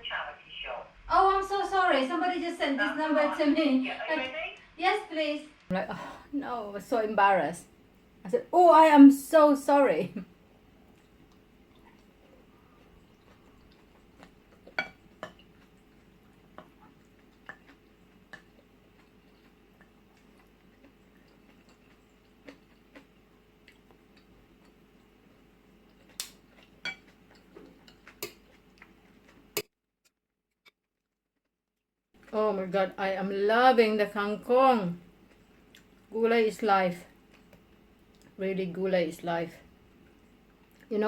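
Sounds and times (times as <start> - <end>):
faint room hum: 0.0 - 29.6, 32.2 - 41.0
cutlery clinking against dishes: 14.7 - 15.4, 26.2 - 28.4.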